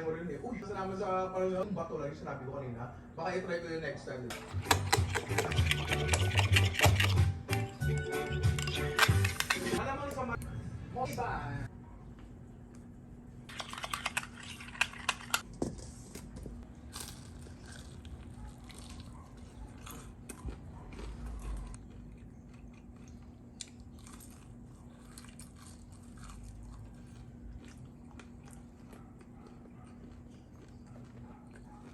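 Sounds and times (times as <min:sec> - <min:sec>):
crunchy chewing of fried chicken: 0:04.3 - 0:09.8, 0:16.7 - 0:31.9.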